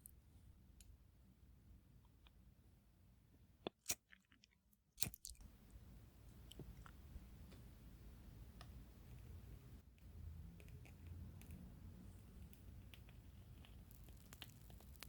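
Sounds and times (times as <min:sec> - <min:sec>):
low steady hum: 0:05.2 - 0:15.0
wood fire crackling and popping: 0:13.9 - 0:15.0.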